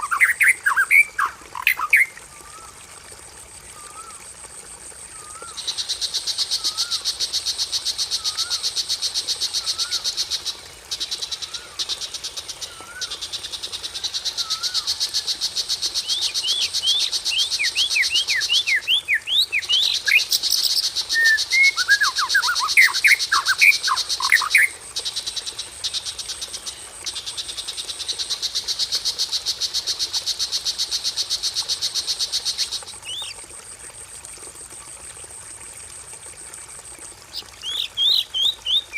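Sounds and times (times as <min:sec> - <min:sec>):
whistled bird notes: 0:21.1 - 0:24.7.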